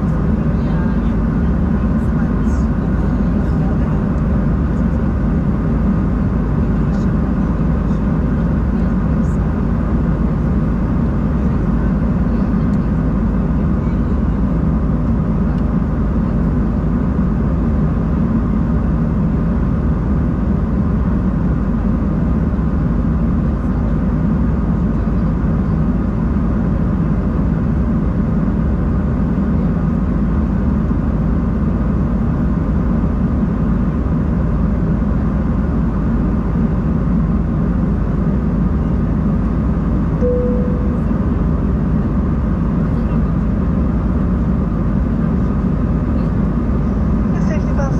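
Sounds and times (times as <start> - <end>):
airplane cabin drone: 0.0 - 47.9
faint steady tones: 40.2 - 41.9.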